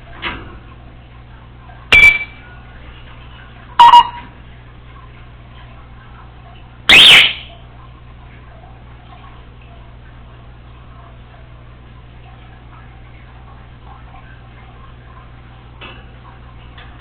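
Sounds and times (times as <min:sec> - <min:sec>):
parrot giving piercing calls: 0:06.9 - 0:07.5.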